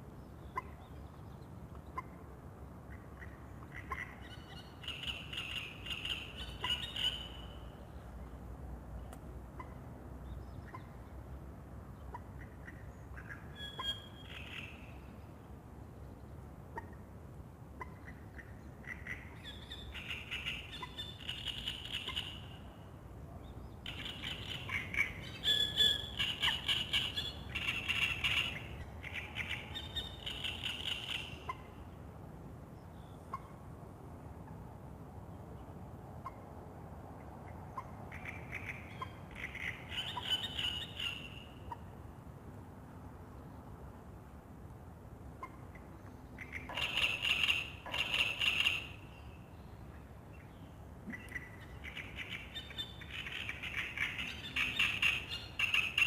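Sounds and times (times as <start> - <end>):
songbirds singing: 0.1 - 8.3, 11.9 - 16.4, 17.8 - 22.8, 23.4 - 32.1, 45.4 - 56.0.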